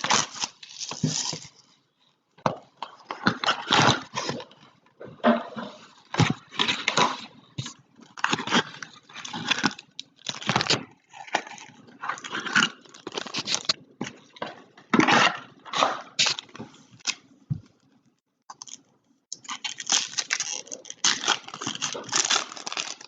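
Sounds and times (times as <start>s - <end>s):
plastic wrappers crinkling and tearing: 0.0s - 1.6s, 6.2s - 17.2s, 18.5s - 23.0s.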